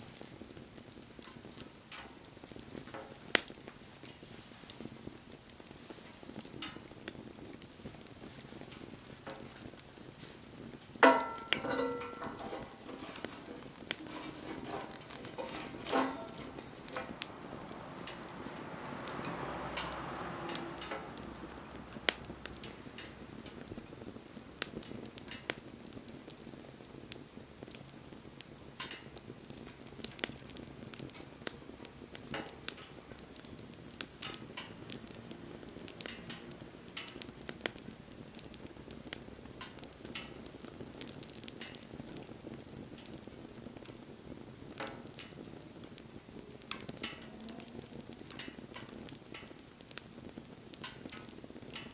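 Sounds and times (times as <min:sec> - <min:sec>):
wood fire crackling: 0:00.0 - 0:51.9
rushing hiss: 0:12.7 - 0:23.4.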